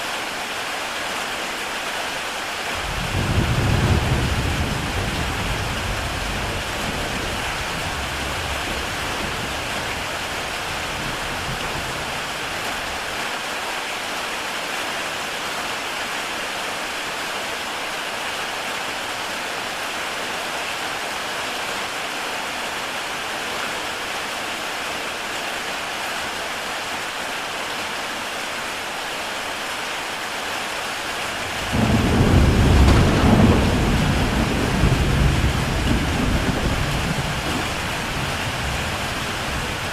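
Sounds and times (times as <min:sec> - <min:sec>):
heavy rain on a tile roof: 0:00.0 - 0:39.9
rumbling thunder: 0:02.8 - 0:12.3, 0:31.4 - 0:39.9.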